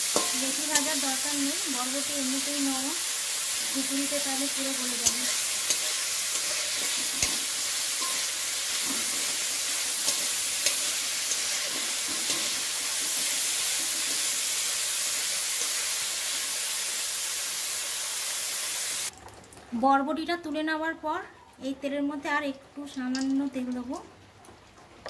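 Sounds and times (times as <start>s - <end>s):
beans sizzling in hot oil: 0.0s - 19.1s, 23.1s - 23.9s
metal spatula scraping a pan: 4.6s - 14.4s.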